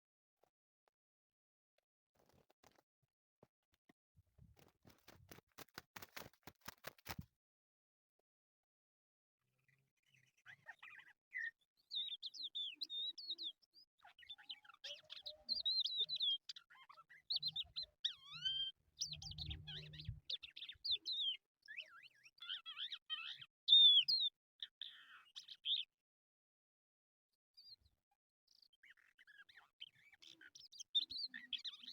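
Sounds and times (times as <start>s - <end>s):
lark singing: 10.8s - 25.9s.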